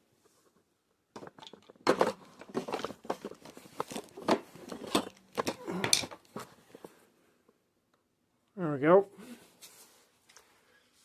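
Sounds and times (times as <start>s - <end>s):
handling clicks taps and rustles: 0.4s - 7.0s.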